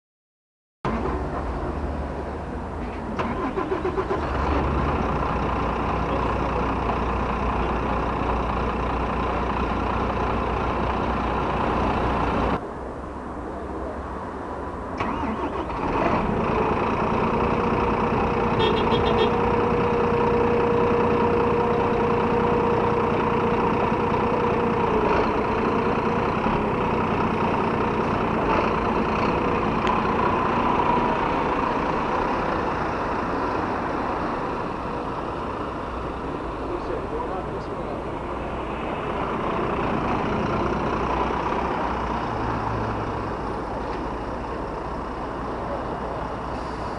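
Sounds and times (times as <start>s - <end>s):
bus diesel engine idling: 0.9s - 12.6s, 15.0s - 46.9s
engine cranking and starting: 3.1s - 5.5s, 15.0s - 18.5s.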